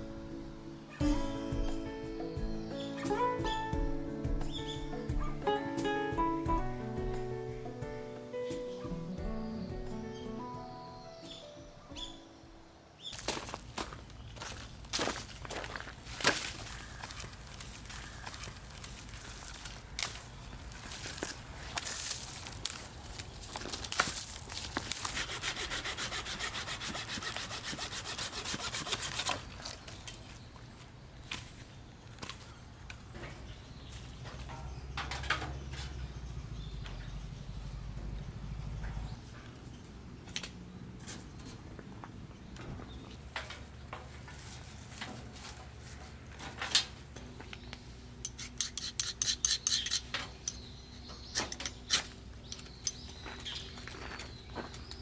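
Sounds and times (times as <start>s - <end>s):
small hard objects clattering: 13.1s - 25.2s
hand saw cutting wood: 23.5s - 30.2s, 48.3s - 50.5s.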